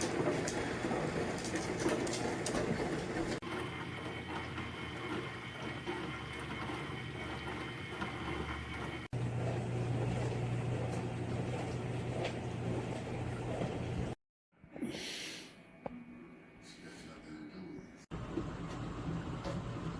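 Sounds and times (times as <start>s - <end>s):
dishwasher water spraying: 0.0s - 3.4s, 9.2s - 14.2s
pump motor humming: 0.0s - 14.2s.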